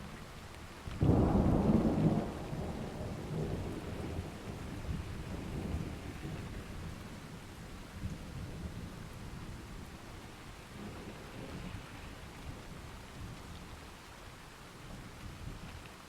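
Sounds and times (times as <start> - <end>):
steady rain: 0.0 - 16.0
thunder clap and rumble: 1.0 - 9.6.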